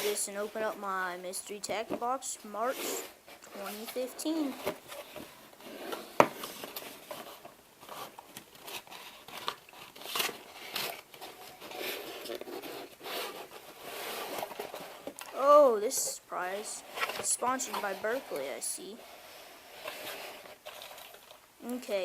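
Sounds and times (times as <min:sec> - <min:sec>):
cardboard box crinkling and tearing: 0:06.4 - 0:15.3.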